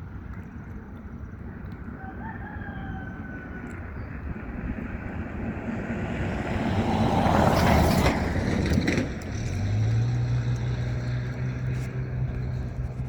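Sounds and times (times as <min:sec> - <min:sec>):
low engine hum: 0:03.0 - 0:13.0
vehicle passing by: 0:04.3 - 0:13.0.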